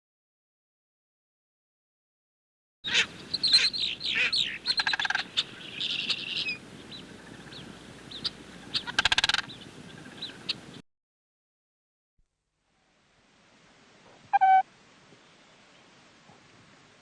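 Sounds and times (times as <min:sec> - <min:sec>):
high chirping calls: 0:02.9 - 0:10.8, 0:14.3 - 0:14.6.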